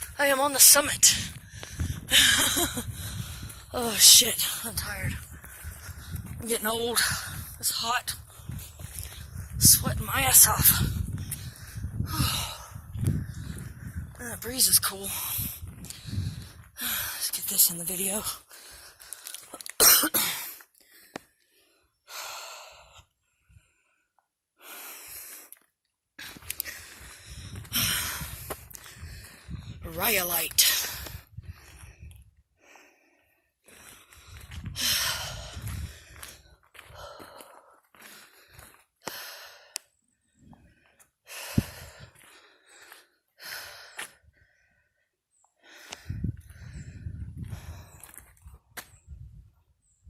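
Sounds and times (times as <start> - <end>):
person breathing hard: 1.4 - 3.8, 5.3 - 6.3, 10.8 - 14.2, 15.5 - 17.3, 18.4 - 19.5, 20.8 - 25.5, 26.2 - 29.8, 30.9 - 48.2
rustling with low rumble: 15.5 - 16.8.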